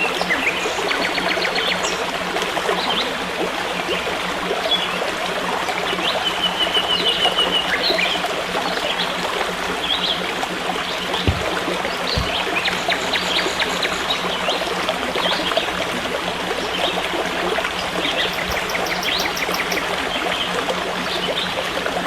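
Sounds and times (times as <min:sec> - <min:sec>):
stream flowing: 0:00.0 - 0:22.0
birds chirping: 0:06.2 - 0:08.3, 0:10.8 - 0:14.6, 0:17.8 - 0:19.9.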